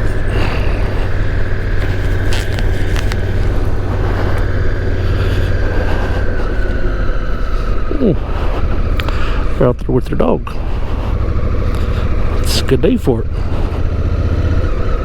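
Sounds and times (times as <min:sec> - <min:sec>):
high whine: 0:00.0 - 0:15.0
motorcycle engine running: 0:00.0 - 0:15.0
wind noise: 0:00.0 - 0:15.0.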